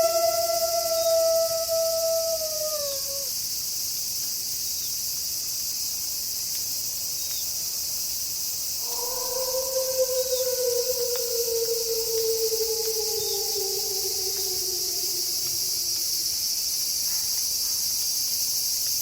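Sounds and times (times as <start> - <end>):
wolf howling: 0.0 - 3.3, 8.8 - 16.4
night insects hissing: 0.0 - 19.0.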